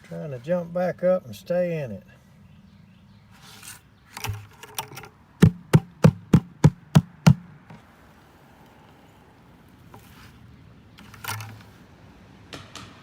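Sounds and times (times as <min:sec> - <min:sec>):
hollow knocks on bucket: 0:04.2 - 0:04.5, 0:05.4 - 0:07.4, 0:12.5 - 0:13.0.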